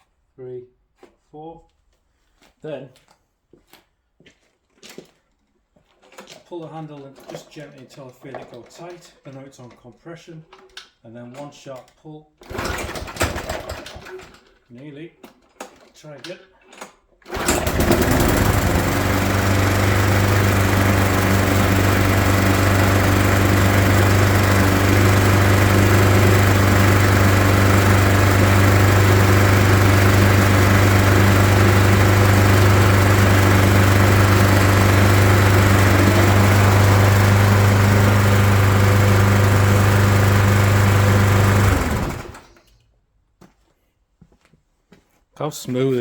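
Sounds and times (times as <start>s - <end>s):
lawnmower engine running: 12.5s - 14.1s, 17.3s - 42.6s.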